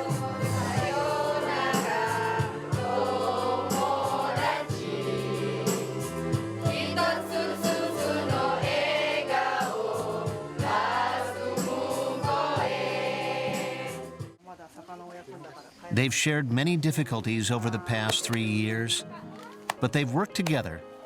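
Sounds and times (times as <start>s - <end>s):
voices singing together: 0.0s - 14.2s
musical accompaniment: 16.6s - 21.0s
held bass notes: 19.7s - 20.8s.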